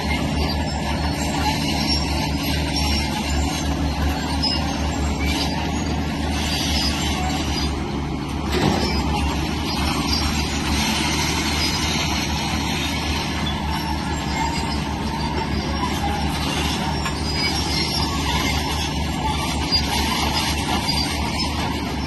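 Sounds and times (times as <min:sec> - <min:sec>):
diesel engine running under load: 0:00.0 - 0:22.0
high metallic squeaks: 0:00.0 - 0:22.0.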